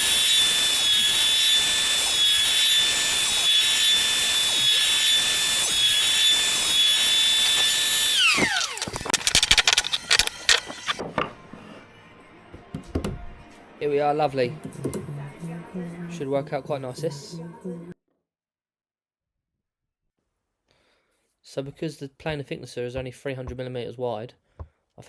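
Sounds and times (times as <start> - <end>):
electric wood planer whining: 0.0 - 11.0.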